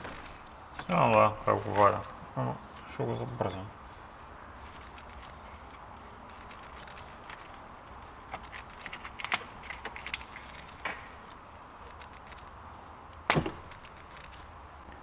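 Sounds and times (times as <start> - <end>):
light clicks and clatter: 4.6 - 15.0.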